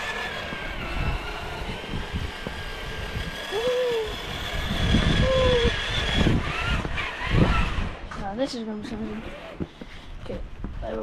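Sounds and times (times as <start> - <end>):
electric motor whine: 0.0 - 8.2.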